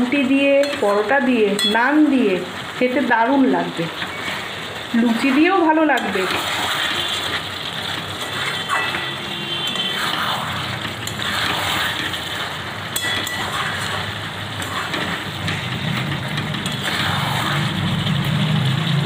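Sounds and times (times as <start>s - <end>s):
chicken frying in a pan: 0.0s - 19.0s
steady rain: 0.0s - 19.0s
spatula scraping a pan: 5.2s - 18.1s.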